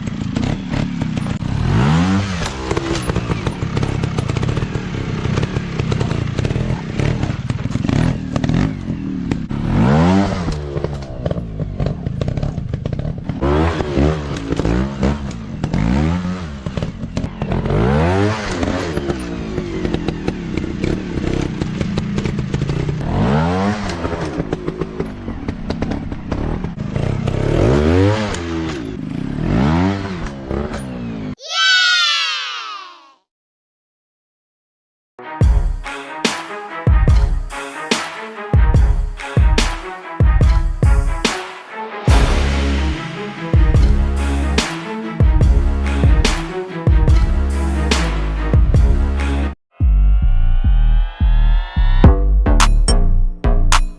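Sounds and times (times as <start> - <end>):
dirt bike engines revving: 0.0 - 32.0.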